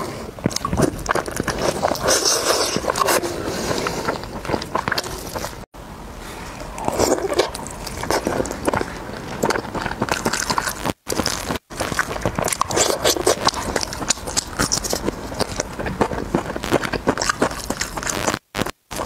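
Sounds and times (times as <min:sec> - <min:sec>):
wet chewing and lip smacks: 0:00.4 - 0:05.6, 0:06.7 - 0:19.0
meat tearing and handling: 0:06.8 - 0:18.3.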